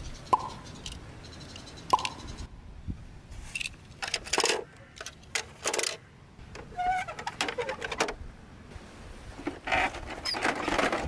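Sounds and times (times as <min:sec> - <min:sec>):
toy cars clattering and scraping: 0:03.5 - 0:08.2, 0:09.4 - 0:11.0.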